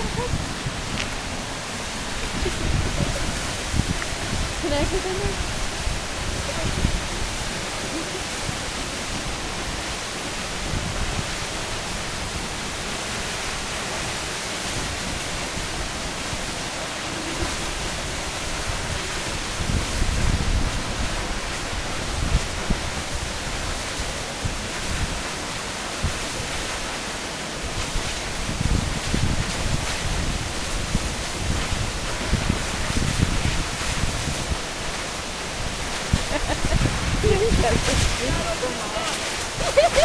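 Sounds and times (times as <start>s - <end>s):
wind buffeting microphone: 0.0s - 25.3s, 27.6s - 40.0s
waterfall rushing: 0.0s - 40.0s.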